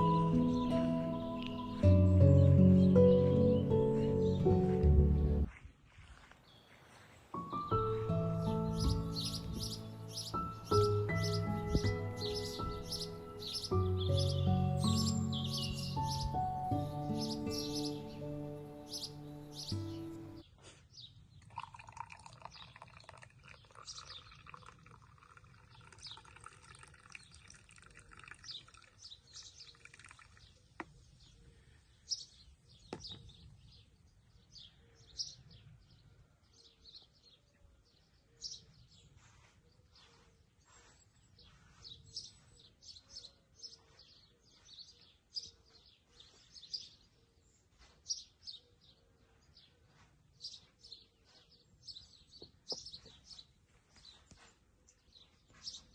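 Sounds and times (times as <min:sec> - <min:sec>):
held chord tones: 0:00.0 - 0:05.5, 0:07.4 - 0:20.4
songbirds chirping: 0:00.0 - 0:55.9.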